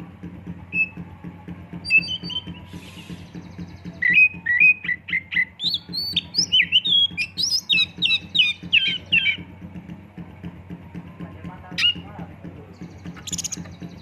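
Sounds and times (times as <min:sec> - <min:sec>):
faint low pulsing hum: 0:00.0 - 0:14.0
bird singing whistled notes: 0:00.7 - 0:01.0, 0:01.8 - 0:09.4, 0:11.8 - 0:12.0, 0:12.7 - 0:14.0.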